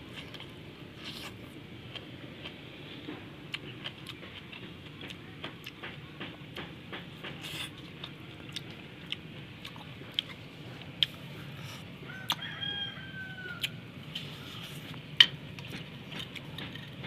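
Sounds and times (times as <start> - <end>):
rooster crowing: 12.0 - 13.8.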